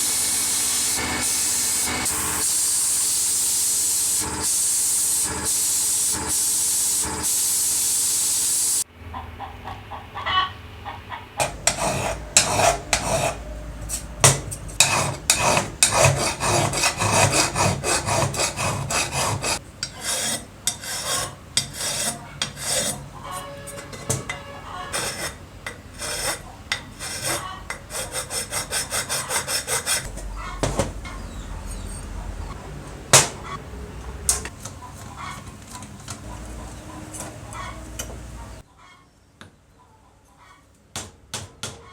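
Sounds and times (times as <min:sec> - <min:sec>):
spray hissing: 0:00.0 - 0:08.8
hand sanding strokes: 0:14.8 - 0:23.0, 0:26.0 - 0:30.1.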